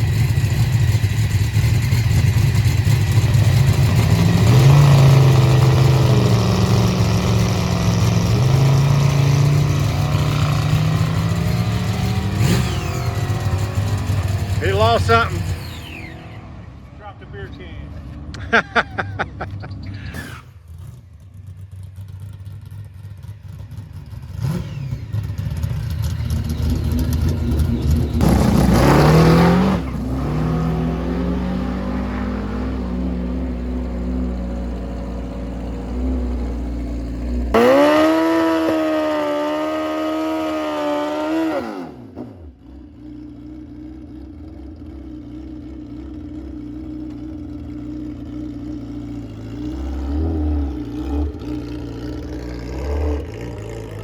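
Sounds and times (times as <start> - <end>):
racing engines revving: 2.9 - 21.1, 24.3 - 42.5, 49.5 - 54.0.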